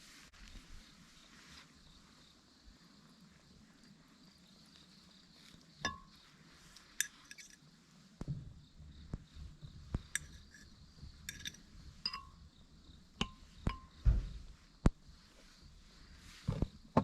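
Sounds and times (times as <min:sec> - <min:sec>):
tableware clinking: 0:05.9 - 0:06.1, 0:07.0 - 0:07.6, 0:10.1 - 0:10.6, 0:11.3 - 0:12.4
soft knocks: 0:13.6 - 0:14.6.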